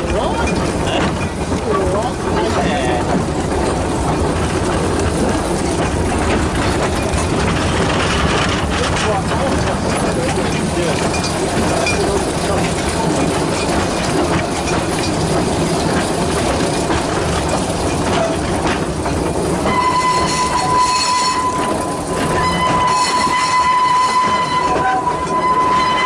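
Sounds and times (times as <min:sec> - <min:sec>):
continuous rushing noise: 0:00.0 - 0:22.7
steam locomotive whistle: 0:19.6 - 0:26.0.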